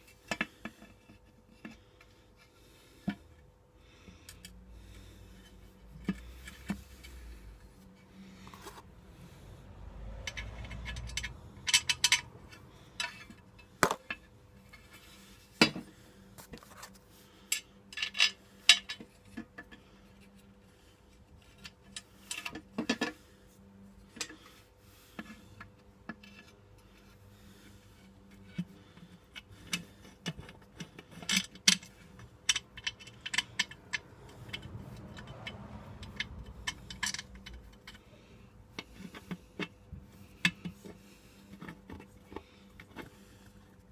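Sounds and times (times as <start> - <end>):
faint steady hum: 0.0 - 43.9
metal tools clinking and tapping: 10.3 - 14.9, 29.7 - 38.1.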